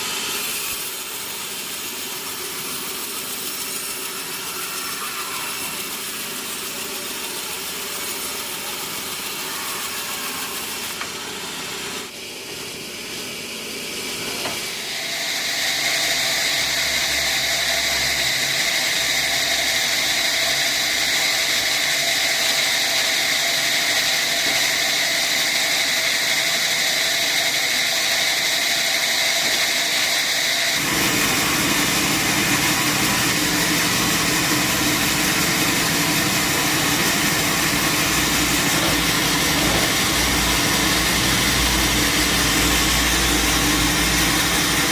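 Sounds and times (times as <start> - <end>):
sawmill machinery running: 0.0 - 44.9
high whine: 30.8 - 44.9.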